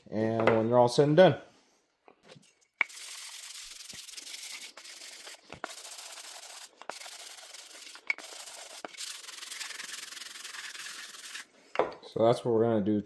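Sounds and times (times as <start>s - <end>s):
sandpaper rubbing on wood: 2.9s - 11.5s.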